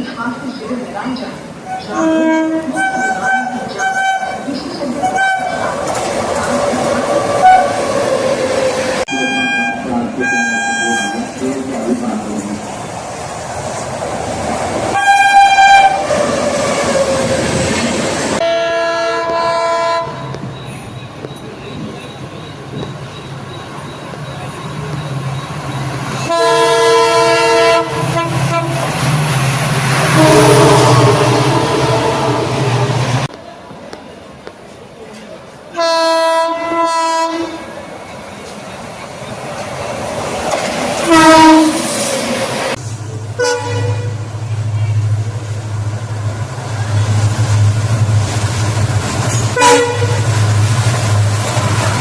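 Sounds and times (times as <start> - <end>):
train rushing past: 0.0 - 33.8, 35.8 - 52.0
locomotive horn blast: 1.7 - 5.7, 7.4 - 7.8, 9.1 - 11.3, 14.9 - 16.2, 18.4 - 20.2, 26.2 - 28.9, 30.0 - 32.7, 35.8 - 37.6, 41.1 - 41.9, 43.4 - 44.2, 49.4 - 50.3.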